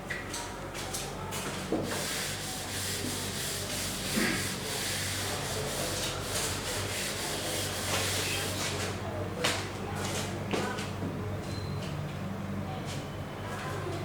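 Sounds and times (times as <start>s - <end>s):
writing scratching on a board: 1.8s - 8.5s.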